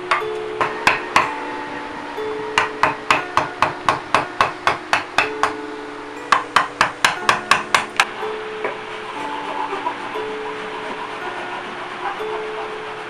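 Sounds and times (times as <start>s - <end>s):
mallet tapping chisel into wood: 6.3s - 8.1s.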